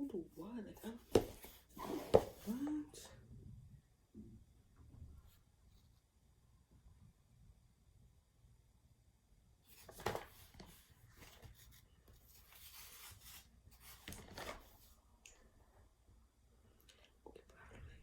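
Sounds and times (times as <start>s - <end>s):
handling rubbing and rustling: 0.1s - 2.9s, 9.7s - 15.0s.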